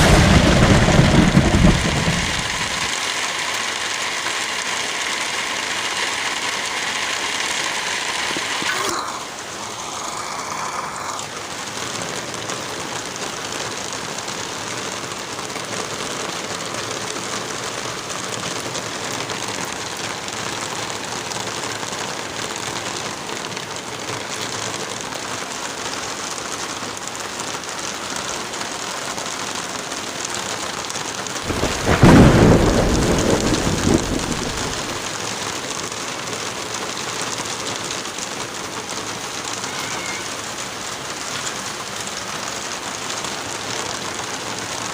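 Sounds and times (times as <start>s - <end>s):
deep rumble: 0.0s - 2.9s
light rain: 0.0s - 44.9s
wind in a forest: 0.0s - 44.9s.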